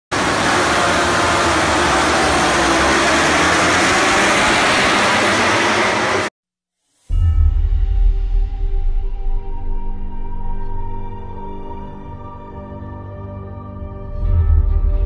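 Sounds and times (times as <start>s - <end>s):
vehicle roar: 0.1s - 6.3s.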